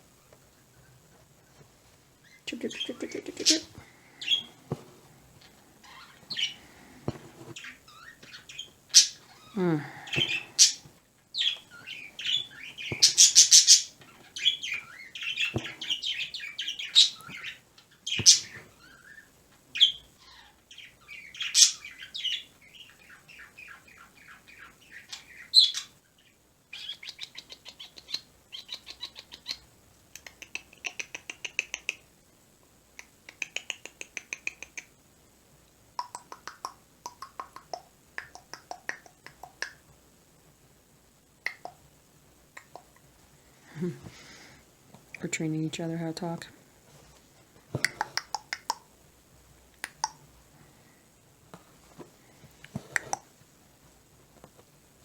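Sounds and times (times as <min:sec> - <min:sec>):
pet bird chirping and squawking: 0:02.2 - 0:04.6, 0:05.8 - 0:06.7, 0:07.6 - 0:10.8, 0:11.4 - 0:19.2
bird clicking chatter: 0:30.1 - 0:32.0, 0:33.0 - 0:34.9, 0:36.0 - 0:39.8, 0:41.4 - 0:41.8, 0:47.8 - 0:48.9.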